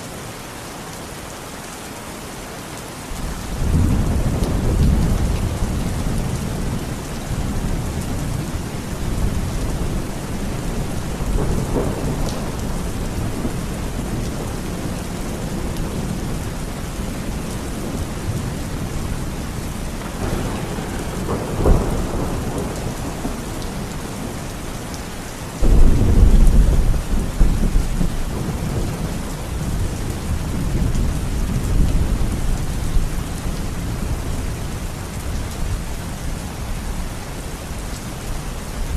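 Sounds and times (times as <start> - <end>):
heavy rain: 0.0 - 38.9
rolling thunder: 3.2 - 24.8, 25.6 - 34.5
loud thunderclap: 20.0 - 24.3, 25.6 - 32.5
sharp thunder crack: 20.1 - 23.4.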